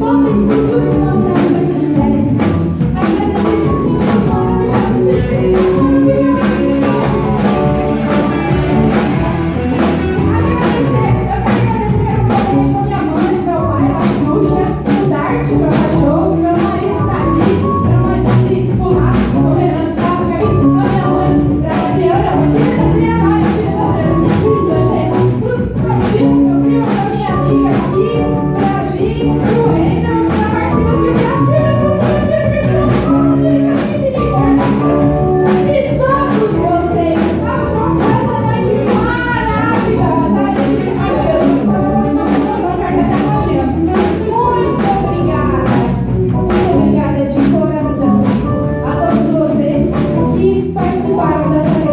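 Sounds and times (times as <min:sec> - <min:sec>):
person singing: 0:00.0 - 0:51.9
rock band playing: 0:00.0 - 0:51.9
drum beat: 0:00.6 - 0:12.9.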